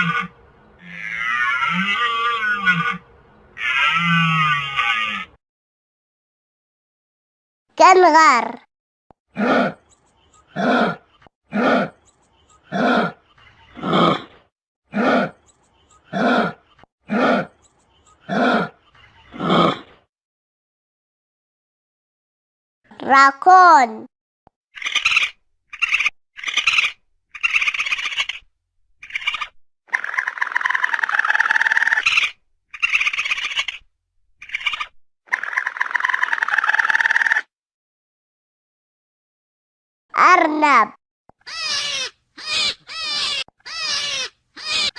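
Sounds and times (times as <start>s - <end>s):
kangaroo calls: 0.0s - 5.4s, 9.4s - 14.2s, 24.8s - 33.8s, 34.4s - 37.4s, 41.4s - 44.9s.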